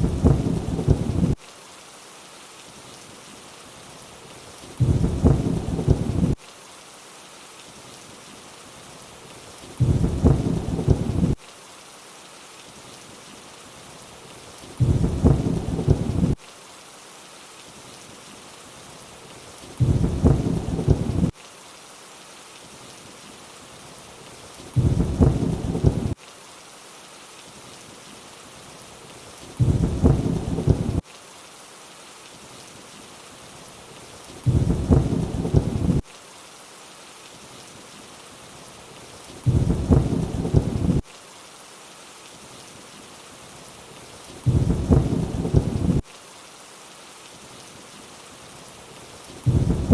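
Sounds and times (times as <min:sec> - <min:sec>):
low thunder rumble: 0:00.0 - 0:01.4, 0:04.8 - 0:06.4, 0:09.8 - 0:11.4, 0:14.8 - 0:16.4, 0:19.8 - 0:21.3, 0:24.8 - 0:26.2, 0:29.6 - 0:31.0, 0:34.5 - 0:36.0, 0:39.5 - 0:41.0, 0:44.5 - 0:46.0, 0:49.5 - 0:49.9
steady rain hiss: 0:00.0 - 0:49.9.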